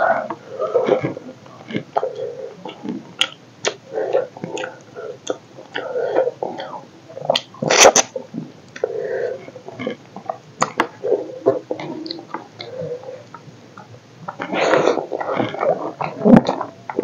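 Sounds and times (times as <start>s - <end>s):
person chewing with lip smacks: 2.6s - 5.8s
sharp breathy noise: 14.4s - 15.8s.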